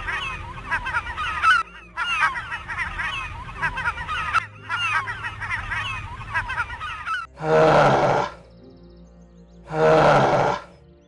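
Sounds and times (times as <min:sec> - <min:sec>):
flock of birds calling: 0:00.0 - 0:07.3.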